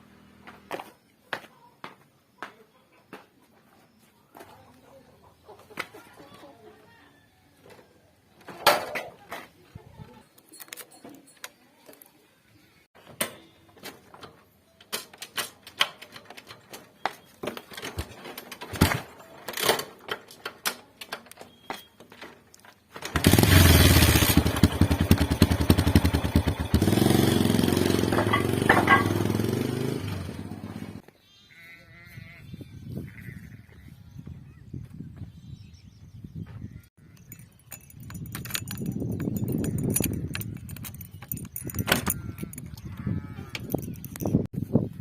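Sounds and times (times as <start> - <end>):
scattered clicks and knocks: 37.2 - 44.5.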